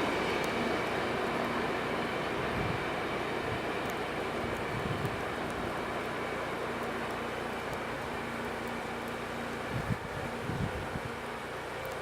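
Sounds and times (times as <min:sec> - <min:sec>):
train wheels rumbling on rail: 0:00.0 - 0:12.0
faint high ticks: 0:00.3 - 0:01.6, 0:03.8 - 0:09.6, 0:11.7 - 0:12.0.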